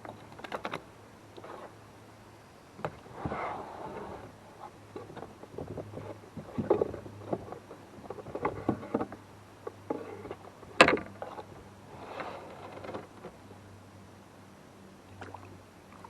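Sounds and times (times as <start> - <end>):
knocks and clatters of handling: 4.9 - 11.6.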